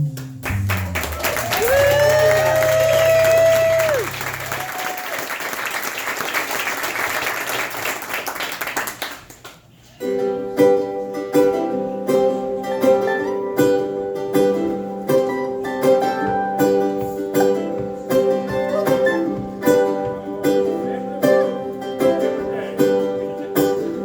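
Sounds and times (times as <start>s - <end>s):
band finishing a song: 0.0s - 6.4s
audience applause: 0.4s - 9.6s
plucked string instrument picking: 10.0s - 24.0s.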